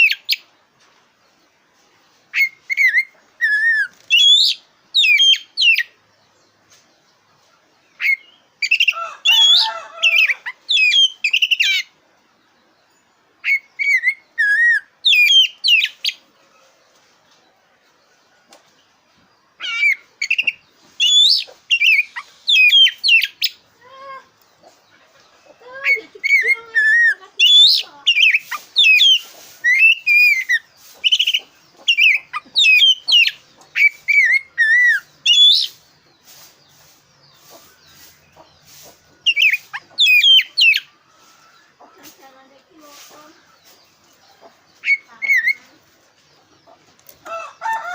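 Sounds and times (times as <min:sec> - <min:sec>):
bird singing whistles and trills: 0:02.4 - 0:05.9, 0:10.7 - 0:11.9, 0:13.4 - 0:16.1, 0:19.6 - 0:23.6, 0:26.3 - 0:35.8.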